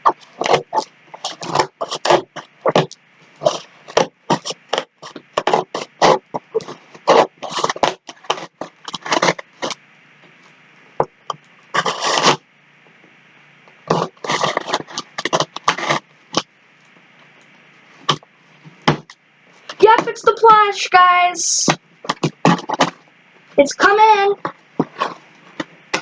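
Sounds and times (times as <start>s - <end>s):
package scraping and tearing: 0.0s - 9.8s, 11.7s - 12.4s, 13.8s - 16.5s, 22.0s - 23.0s, 24.4s - 26.0s.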